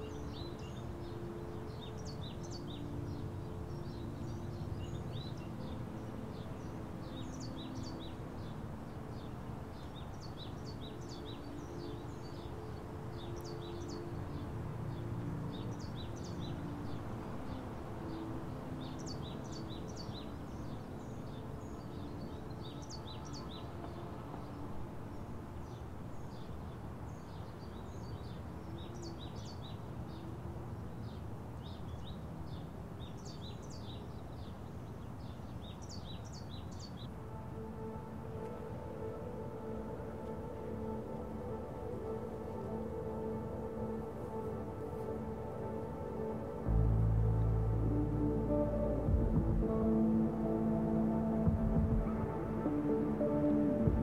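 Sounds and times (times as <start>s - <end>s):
birds chirping: 0.0s - 54.0s
low background rumble: 46.6s - 54.0s.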